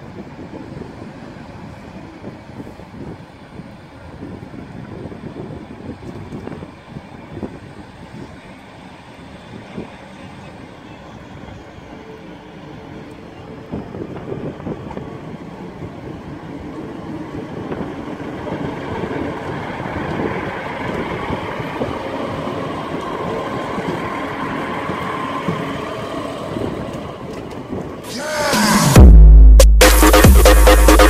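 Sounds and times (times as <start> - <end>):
diesel train passing: 0.0 - 31.0
electronic music: 28.0 - 31.0.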